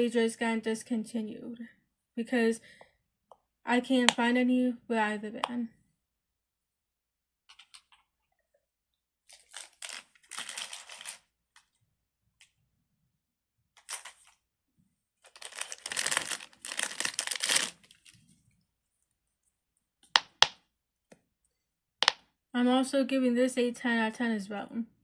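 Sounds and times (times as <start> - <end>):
plastic crinkling and rustling: 9.3 - 11.8, 13.8 - 14.4, 15.2 - 18.5.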